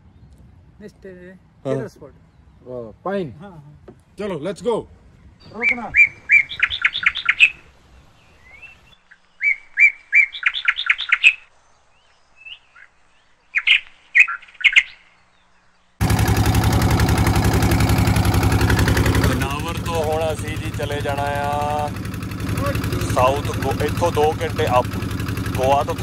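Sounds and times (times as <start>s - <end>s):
songbird singing: 0.0s - 26.0s
pulsing vehicle engine: 16.0s - 26.0s.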